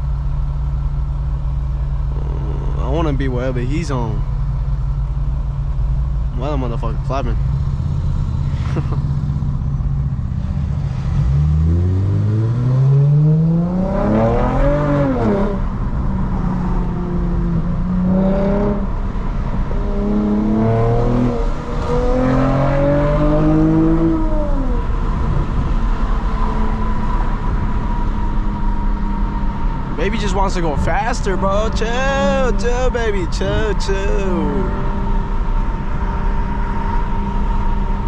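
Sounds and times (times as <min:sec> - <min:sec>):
car engine accelerating through gears: 0:07.4 - 0:32.5.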